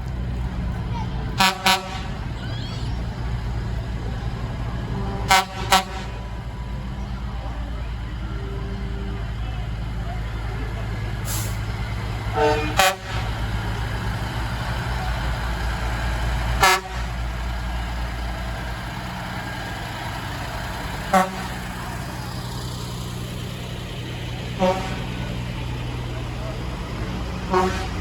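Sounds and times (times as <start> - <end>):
diesel truck engines running: 0.0 - 28.0
truck horn blasts: 1.3 - 3.1, 4.8 - 14.0, 16.4 - 17.5, 20.8 - 22.1, 24.3 - 28.0.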